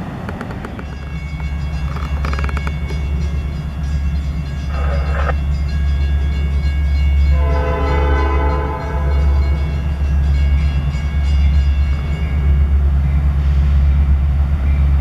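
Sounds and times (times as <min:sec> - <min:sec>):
diesel locomotive engine drone: 0:00.0 - 0:15.0
locomotive air horn: 0:07.3 - 0:09.6.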